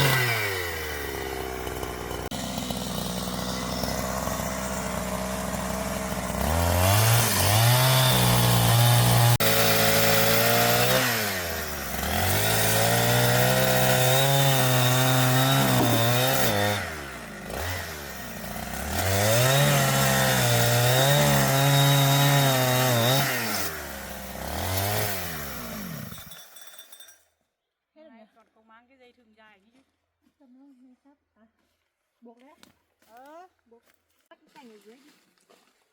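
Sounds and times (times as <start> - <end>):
chainsaw revving and cutting wood: 0.0 - 26.7.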